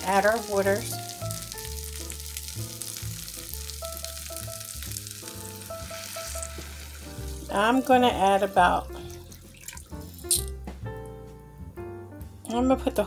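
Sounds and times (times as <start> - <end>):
rice sizzling in oil: 0.0 - 8.5
water pouring into pot: 0.0 - 10.4
background music with bass: 0.0 - 13.0.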